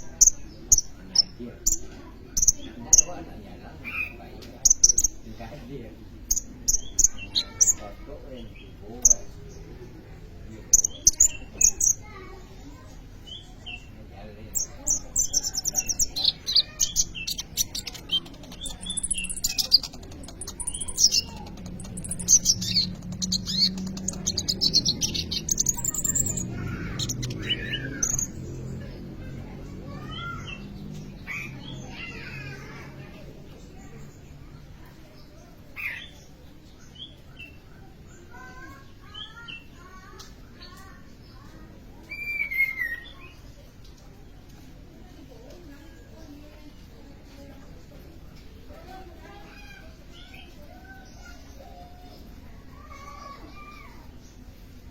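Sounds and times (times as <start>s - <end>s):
sunbird singing: 6.0s - 34.6s
bird singing high chirps: 14.5s - 28.7s.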